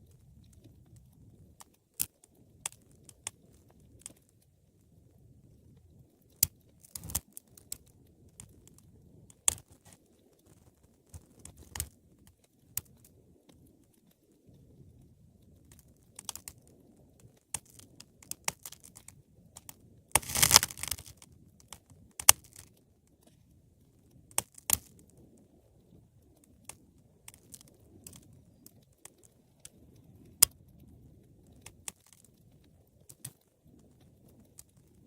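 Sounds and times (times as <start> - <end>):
low rumble of burning: 0.0 - 35.0
wood fire crackling: 0.0 - 35.0
sharp pops of fire: 19.6 - 22.7.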